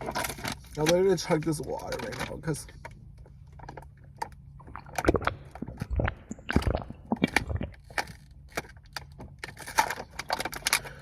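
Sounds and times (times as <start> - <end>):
person gulping water: 4.5 - 8.0.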